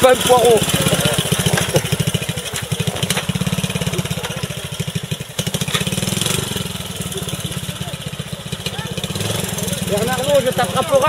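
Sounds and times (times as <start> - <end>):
motorcycle engine at low revs: 0.0 - 11.0.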